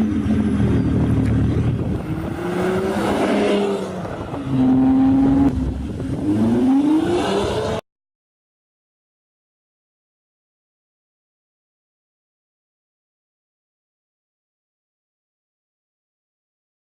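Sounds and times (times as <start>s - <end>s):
diesel car engine revving: 0.0s - 7.8s.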